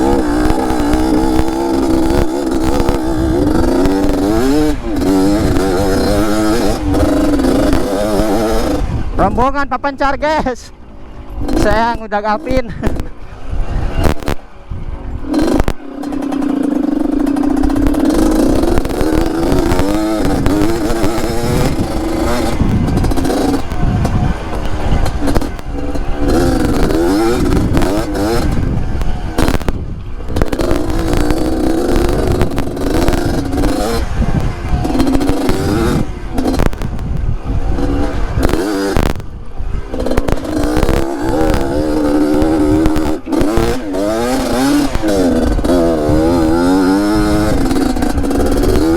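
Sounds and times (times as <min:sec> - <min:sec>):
two-stroke motorbike revving: 0:00.0 - 0:48.9.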